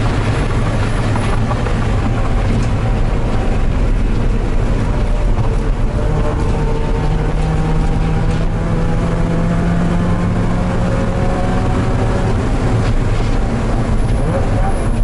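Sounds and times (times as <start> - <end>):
race car engine accelerating: 0.0 - 15.0
road and cabin rumble: 0.0 - 15.0.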